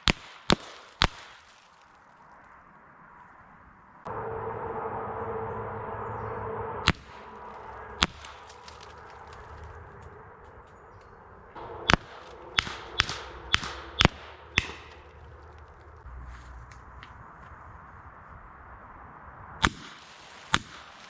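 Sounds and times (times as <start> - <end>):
air pistol cracks: 11.6 - 15.2, 19.6 - 21.0.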